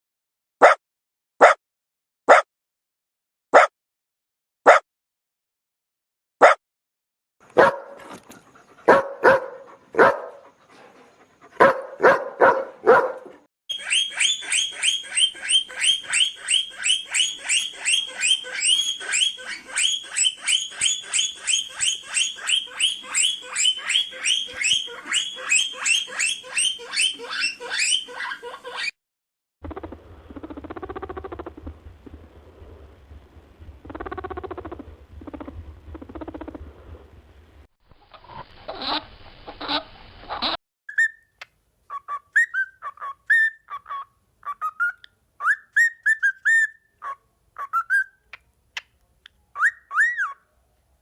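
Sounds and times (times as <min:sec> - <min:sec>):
quick high rising chirps: 0:13.7 - 0:28.0.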